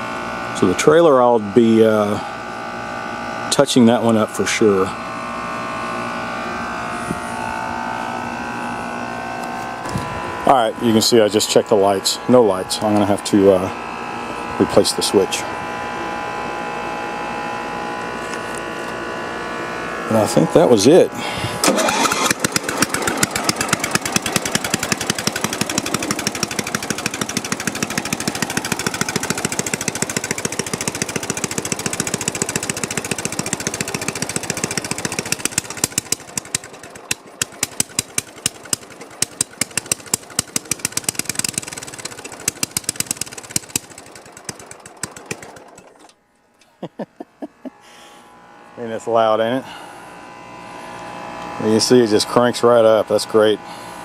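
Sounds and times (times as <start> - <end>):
lawn tractor engine running: 19.9 - 46.8.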